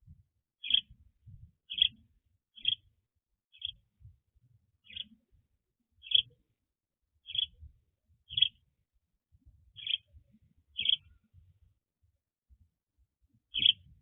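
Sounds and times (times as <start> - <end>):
bird chirping: 0.6 - 1.0, 1.7 - 2.0, 2.6 - 2.9, 3.5 - 3.9, 4.8 - 5.2, 6.0 - 6.4, 7.2 - 7.7, 8.3 - 8.6, 9.8 - 10.1, 10.8 - 11.2, 13.5 - 13.9.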